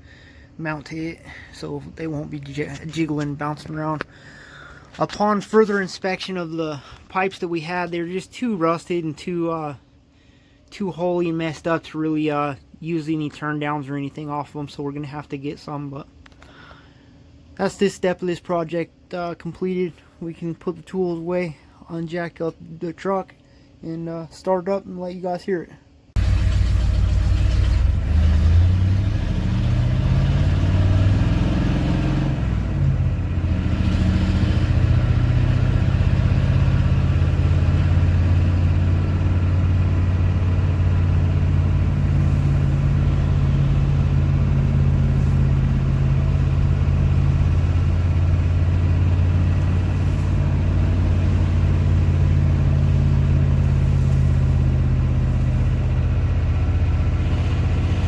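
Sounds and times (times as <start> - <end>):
diesel engine revving and idling: 26.2 - 58.0.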